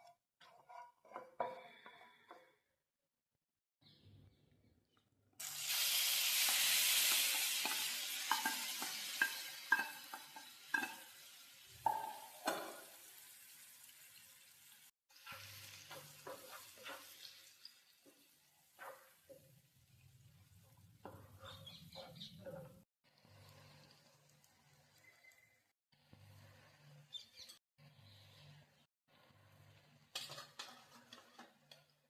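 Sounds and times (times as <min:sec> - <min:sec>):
spoon scraping a pan: 0:00.0 - 0:02.6, 0:06.6 - 0:11.2, 0:15.2 - 0:19.5, 0:30.0 - 0:32.0
food sizzling in hot oil: 0:05.4 - 0:20.3.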